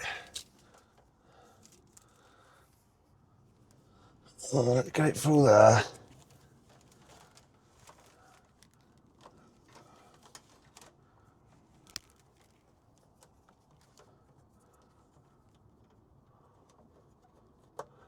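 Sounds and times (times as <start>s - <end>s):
faint plastic clicks: 6.7s - 11.1s, 11.7s - 18.0s.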